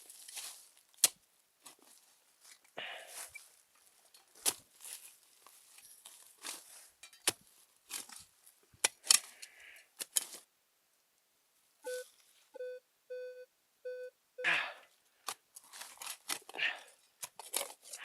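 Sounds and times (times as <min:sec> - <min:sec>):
rustling scrape: 0:04.2 - 0:08.3
sharp clicks and scraping: 0:08.8 - 0:10.4, 0:17.2 - 0:18.0
metal detector beeps: 0:11.9 - 0:14.1.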